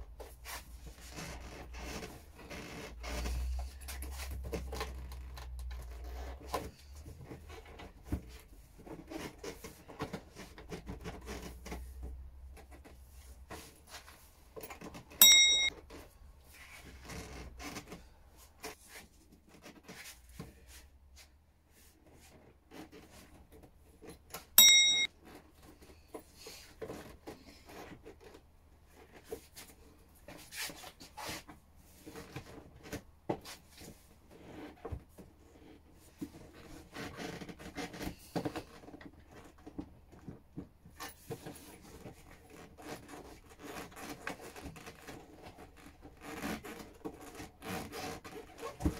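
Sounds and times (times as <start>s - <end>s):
short high beeps: 15.2s - 15.7s, 24.6s - 25.1s.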